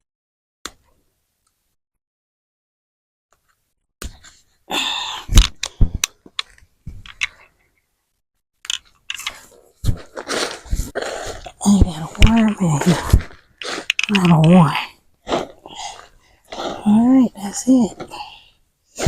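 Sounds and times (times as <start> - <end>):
hands digging through soil: 9.4 - 18.1.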